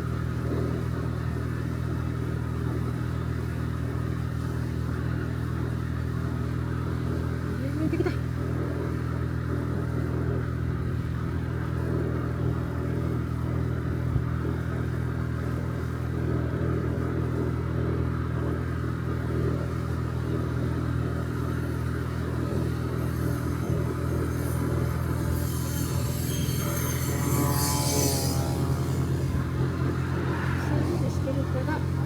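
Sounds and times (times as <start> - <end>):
scooter engine running steadily: 0.0 - 32.0.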